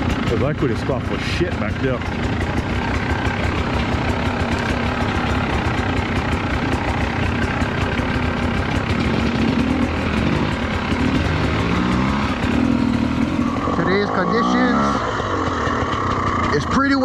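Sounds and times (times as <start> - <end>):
dirt bike engine idling: 0.0 - 17.0.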